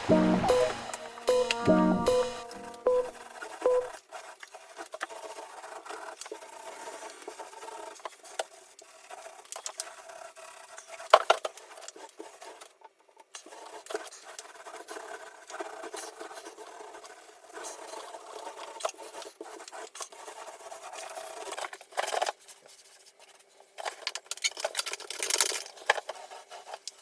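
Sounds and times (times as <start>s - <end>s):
music: 0.0s - 3.9s.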